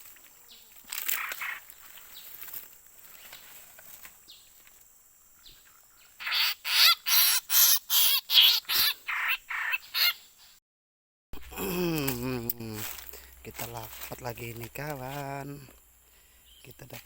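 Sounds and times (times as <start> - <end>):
bird squawking: 1.0 - 1.7, 6.2 - 10.3.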